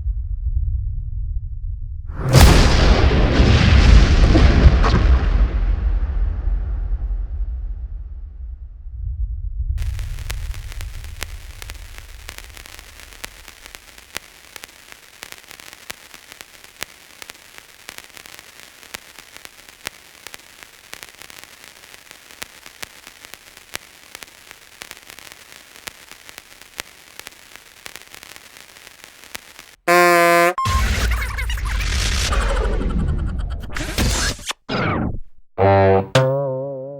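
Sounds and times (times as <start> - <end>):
low rumble: 0.0 - 10.2
static hiss with crackling: 9.8 - 32.0
pitched cartoon sound: 29.9 - 30.7, 35.6 - 36.9.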